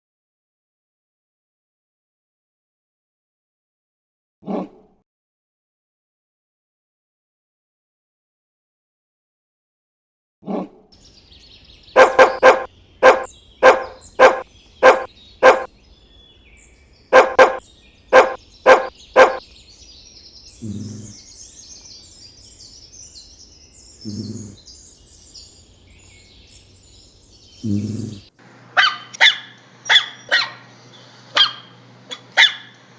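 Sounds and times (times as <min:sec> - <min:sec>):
dog barking: 0:12.0 - 0:15.7, 0:17.1 - 0:19.4, 0:28.8 - 0:30.6, 0:32.4 - 0:32.7.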